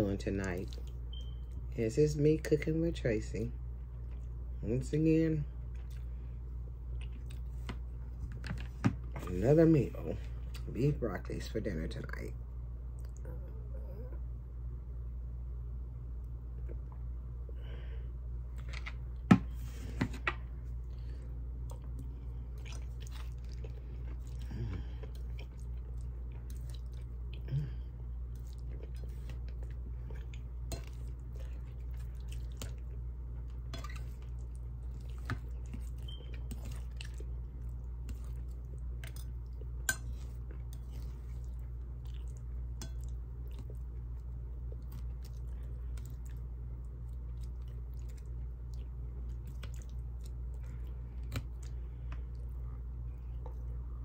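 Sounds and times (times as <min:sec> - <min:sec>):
steady low hum: 0:00.0 - 0:54.0
chewing and mouth sounds: 0:00.4 - 0:01.7, 0:03.8 - 0:04.6, 0:05.6 - 0:08.5, 0:20.8 - 0:54.0.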